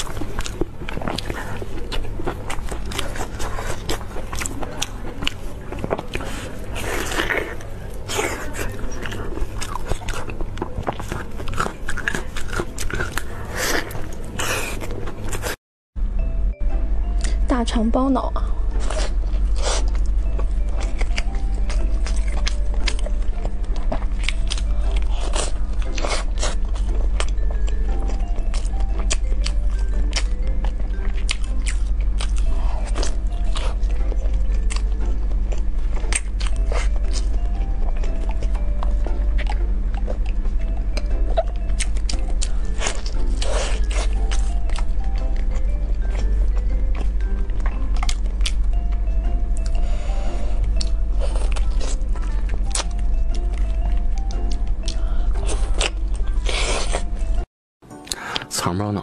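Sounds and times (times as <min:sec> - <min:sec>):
wet chewing: 0:00.0 - 0:15.6, 0:18.7 - 0:58.5.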